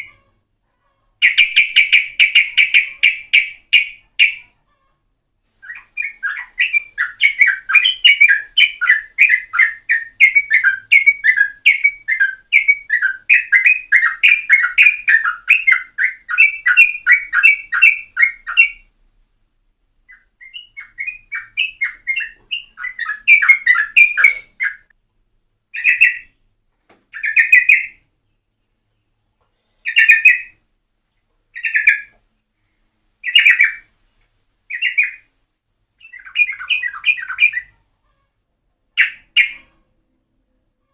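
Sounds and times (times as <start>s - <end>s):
bulbul singing: 1.2s - 4.5s, 5.6s - 18.9s, 20.1s - 24.9s, 25.7s - 26.4s, 27.1s - 28.0s, 31.5s - 32.2s, 36.0s - 37.8s.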